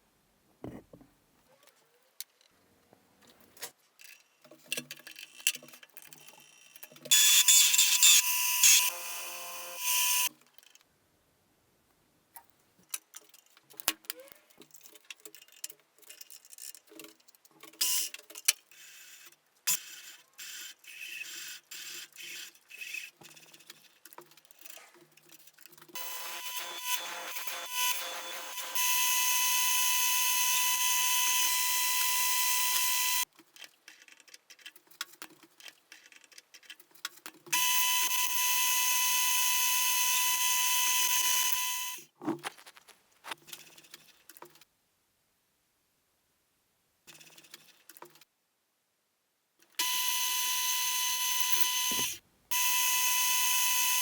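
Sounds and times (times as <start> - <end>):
metal parts clicking and knocking: 12.8 - 18.7
power tool motor whining: 26.0 - 33.2, 49.8 - 54.0.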